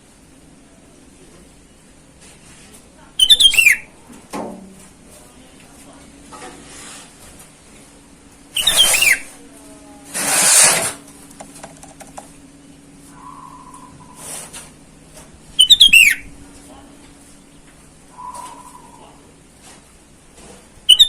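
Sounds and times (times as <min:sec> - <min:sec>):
bird whistled calls: 0:03.2 - 0:03.9, 0:08.6 - 0:09.3, 0:13.1 - 0:14.3, 0:15.6 - 0:16.3, 0:18.1 - 0:19.2.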